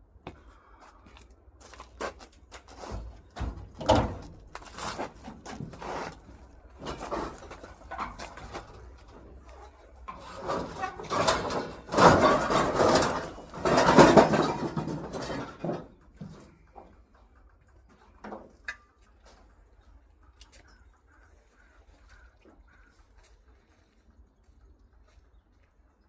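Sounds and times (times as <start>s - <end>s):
scrap rustling and clattering: 1.7s - 19.6s.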